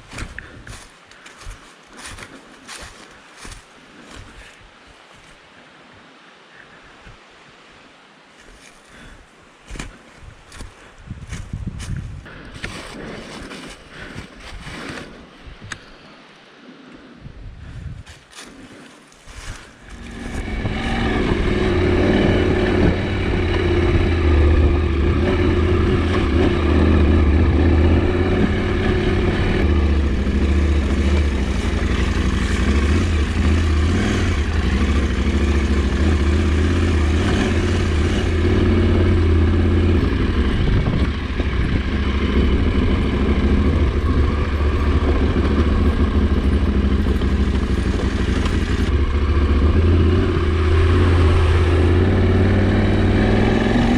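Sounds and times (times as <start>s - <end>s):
motorcycle engine running: 19.8s - 53.9s.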